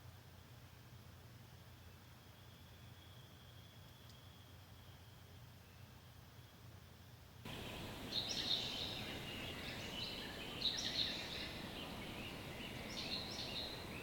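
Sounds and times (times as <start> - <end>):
outdoor background hiss: 0.0 - 14.0
bird singing chirpy phrase: 7.5 - 14.0.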